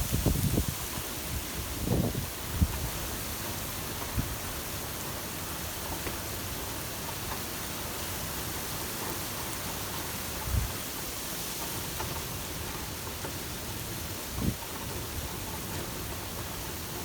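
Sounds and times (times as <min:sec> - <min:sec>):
heavy rain downpour: 0:00.0 - 0:17.0.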